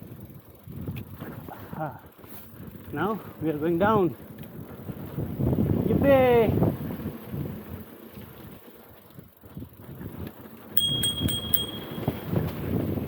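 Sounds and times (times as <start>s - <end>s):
bicycle riding rumble: 0.0s - 13.0s
bicycle bell ringing: 10.8s - 12.6s.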